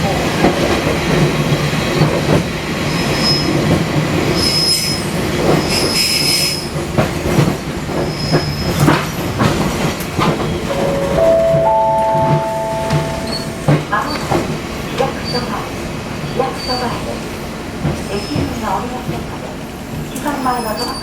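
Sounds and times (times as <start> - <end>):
train rumbling on rails: 0.0 - 21.0
steady pitched tone: 10.7 - 14.2.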